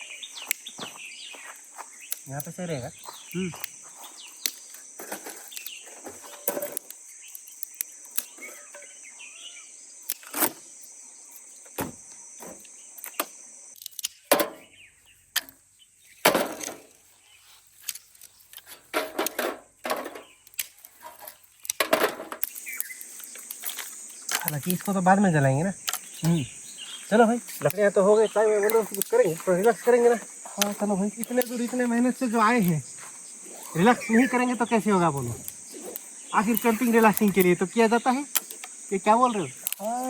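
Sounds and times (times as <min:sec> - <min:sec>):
high insect drone: 0:00.0 - 0:40.0
firewood sticks breaking: 0:16.2 - 0:17.0, 0:17.8 - 0:25.1, 0:27.2 - 0:32.9.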